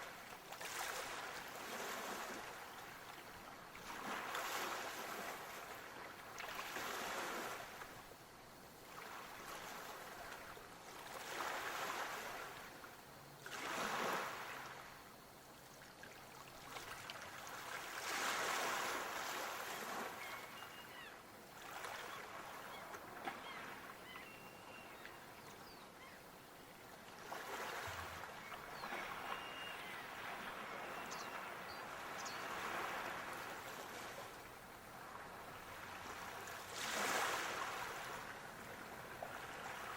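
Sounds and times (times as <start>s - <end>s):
waves washing in: 3.7s - 8.0s, 11.0s - 12.8s, 13.5s - 15.0s, 16.6s - 20.3s, 27.2s - 39.9s.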